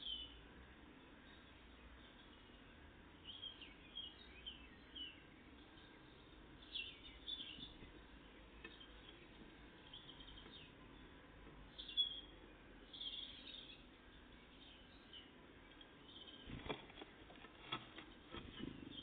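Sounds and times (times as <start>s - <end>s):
low background hiss: 0.0s - 19.0s
songbirds chirping: 0.0s - 19.0s.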